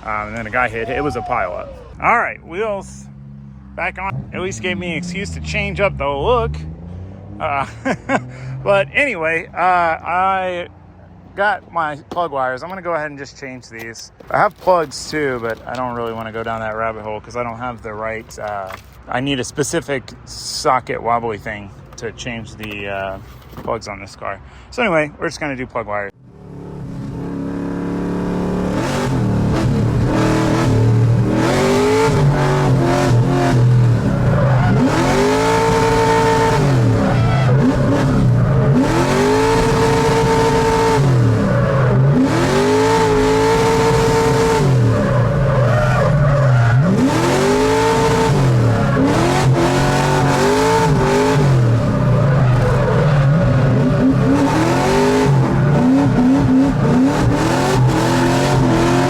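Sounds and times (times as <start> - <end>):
car engine revving: 0.0 - 10.2, 26.2 - 59.0
tyre squeal: 32.0 - 38.9, 43.6 - 59.0.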